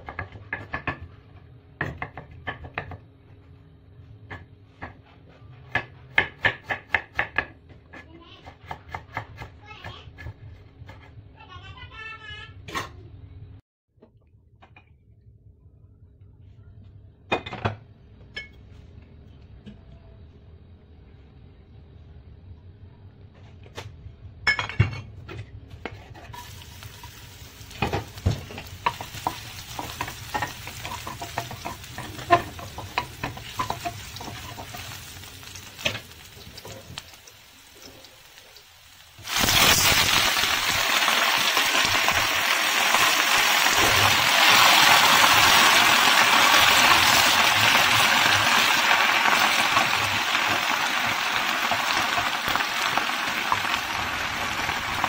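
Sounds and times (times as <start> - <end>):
garlic frying in oil: 26.3 - 55.0
loud sizzle of leaves in oil: 26.3 - 55.0.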